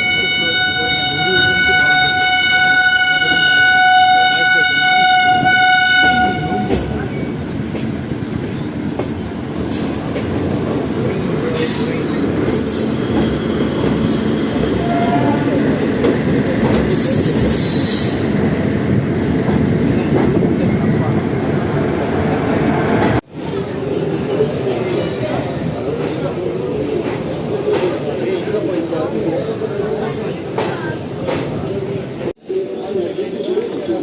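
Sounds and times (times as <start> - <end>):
train horn: 0.0 - 7.0, 14.8 - 15.5
train rumble on rails: 0.0 - 34.0
high wheel squeals: 11.5 - 15.3, 16.9 - 18.4.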